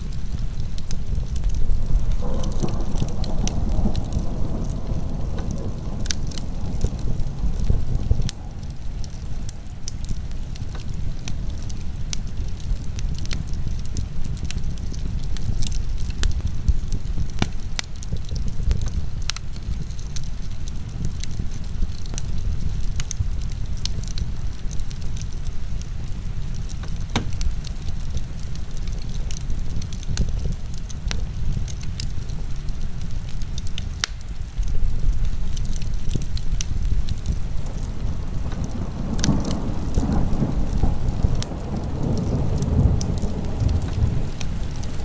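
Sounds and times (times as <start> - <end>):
heavy rain rumble: 0.0 - 45.0
wood fire crackling and popping: 0.0 - 45.0.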